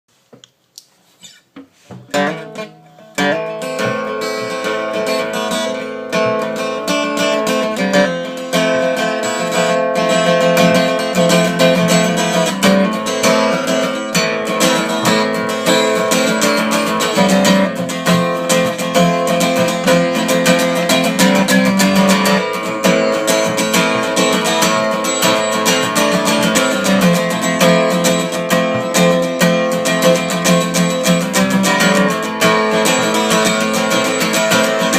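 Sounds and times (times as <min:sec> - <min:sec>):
guitar rhythmic strumming: 0:01.1 - 0:34.9
guitar plucked notes: 0:01.2 - 0:34.9.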